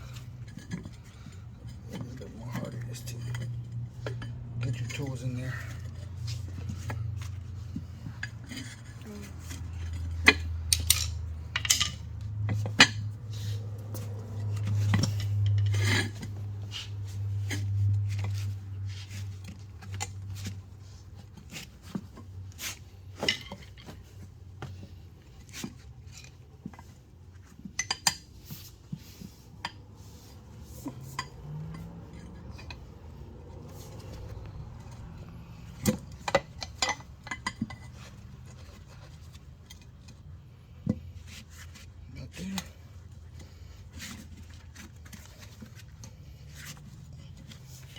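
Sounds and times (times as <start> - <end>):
metal tools clinking on wheel rim: 0.0 - 18.6, 29.5 - 40.2.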